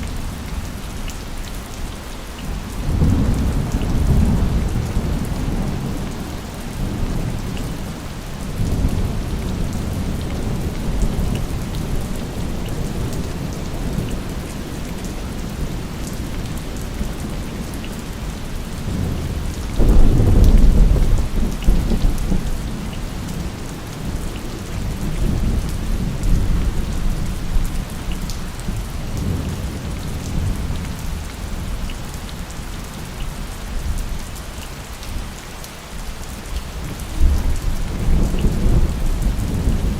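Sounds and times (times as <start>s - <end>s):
heavy rain: 0.0s - 39.9s
rumbling thunder: 18.9s - 31.8s, 37.2s - 39.9s.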